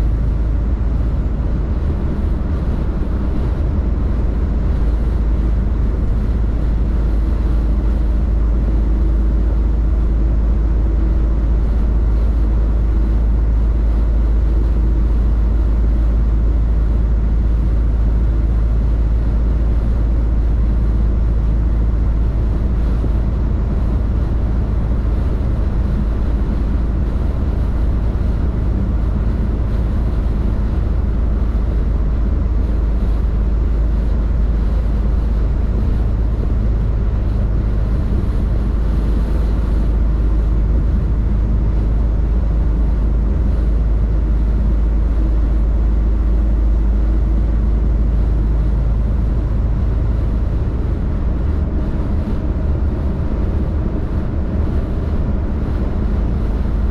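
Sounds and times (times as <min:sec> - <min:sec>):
road noise: 0:00.0 - 0:56.9
truck diesel engine drone: 0:00.0 - 0:56.9.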